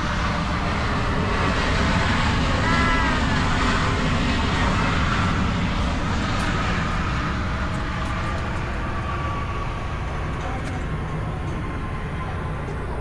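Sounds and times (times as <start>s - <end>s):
airplane engine roar: 0.0s - 13.0s.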